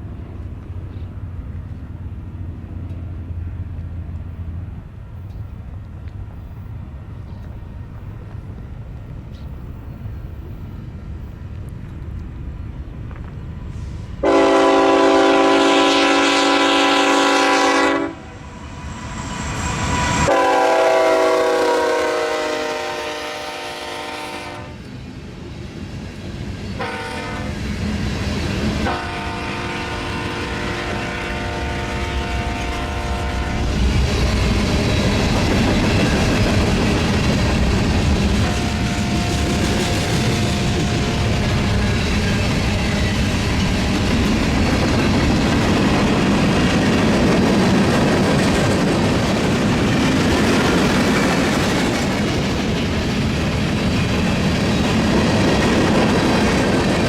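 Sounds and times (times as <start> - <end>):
passing train rumble: 0.0 - 57.0
locomotive air horn blasts: 14.2 - 18.5, 20.2 - 24.8, 26.8 - 27.6, 28.8 - 33.8, 38.4 - 41.7.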